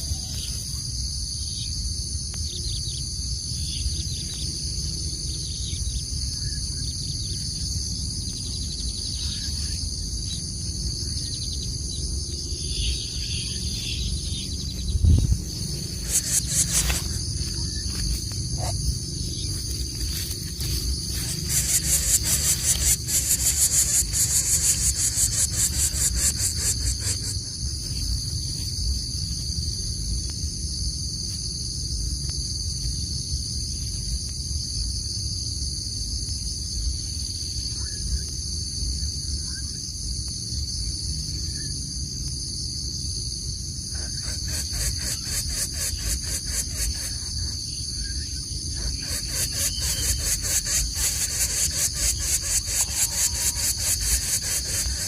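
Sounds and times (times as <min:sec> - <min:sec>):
fast-pulsing insect trill: 0:00.0 - 0:30.0, 0:42.8 - 0:55.0
insects chirring: 0:00.0 - 0:55.0
low rumble: 0:12.0 - 0:21.5.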